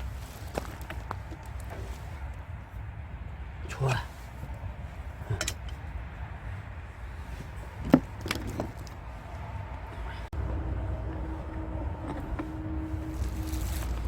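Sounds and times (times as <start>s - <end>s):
low rumble: 0.0s - 14.0s
metal tools clinking on engine: 5.2s - 5.8s.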